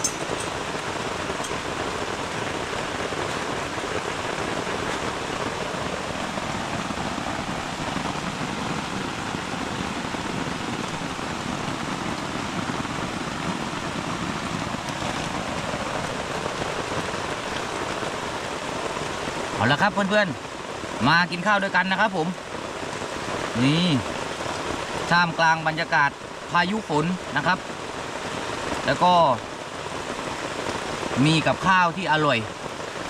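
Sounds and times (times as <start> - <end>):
heavy rain pouring: 0.0 - 33.0.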